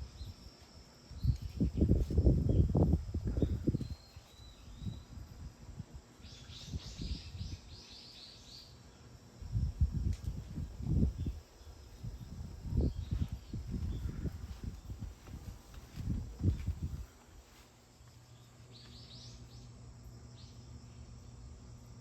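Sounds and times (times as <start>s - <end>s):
small bird singing: 2.5s - 5.2s, 6.2s - 9.1s, 18.3s - 21.5s.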